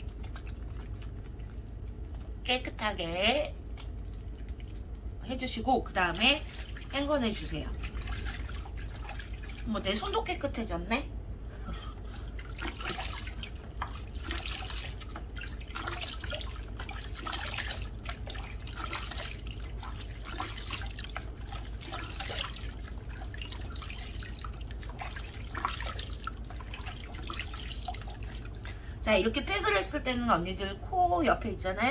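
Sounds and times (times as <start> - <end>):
hands splashing water: 6.0 - 10.2, 11.9 - 28.8.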